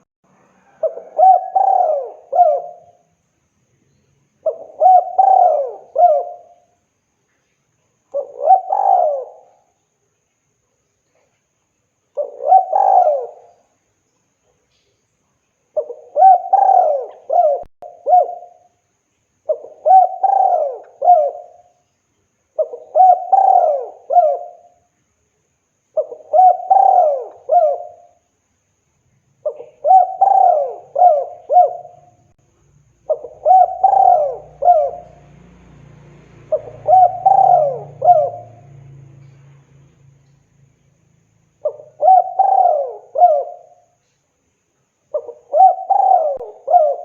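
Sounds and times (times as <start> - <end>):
faint low hum: 0.3 - 47.0
dove cooing: 0.6 - 3.1, 4.4 - 6.8, 8.1 - 9.8, 12.2 - 13.6, 15.8 - 18.7, 19.5 - 21.7, 22.6 - 24.8, 26.0 - 28.2, 29.4 - 32.3, 33.0 - 35.8, 36.4 - 39.4, 41.6 - 44.0, 45.1 - 47.0.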